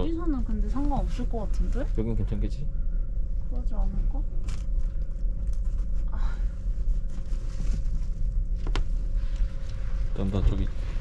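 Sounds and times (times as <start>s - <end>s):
train carriage rumble and hum: 0.0s - 11.0s.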